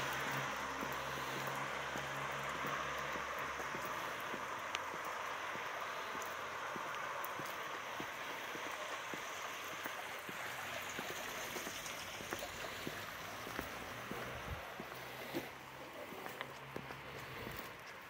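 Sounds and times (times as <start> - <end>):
rain hiss on wet street: 0.0 - 18.0
raindrops ticking close by: 0.0 - 18.0.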